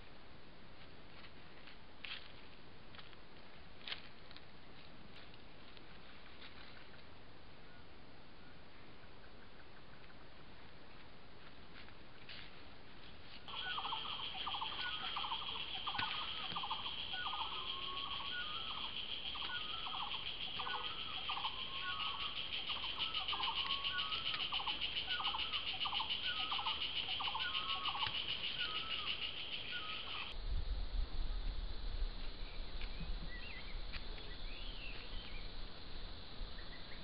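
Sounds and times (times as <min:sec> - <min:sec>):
bird calling: 0:13.5 - 0:30.4
high insect buzz: 0:13.5 - 0:30.4.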